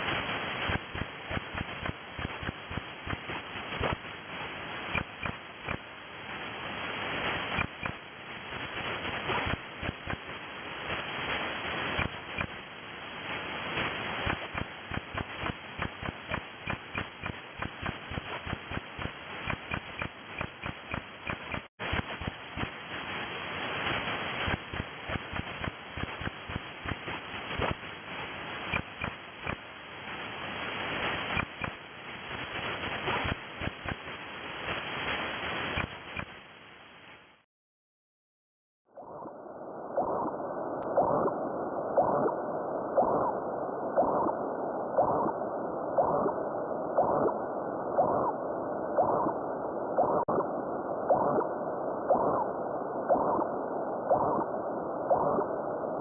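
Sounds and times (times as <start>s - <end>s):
radio hiss: 0.0s - 37.4s
radio pulse crackle: 0.0s - 37.4s, 38.9s - 56.0s.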